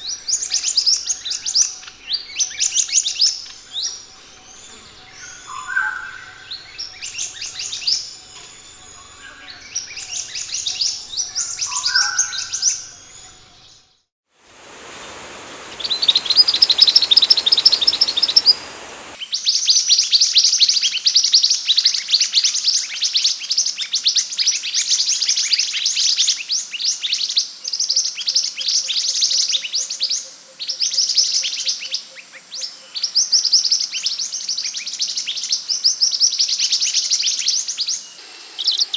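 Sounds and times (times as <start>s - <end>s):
bird chirping: 0.0s - 13.8s, 14.5s - 19.2s
hiss: 14.4s - 19.2s, 38.0s - 38.9s
fast bird trill: 14.6s - 19.2s.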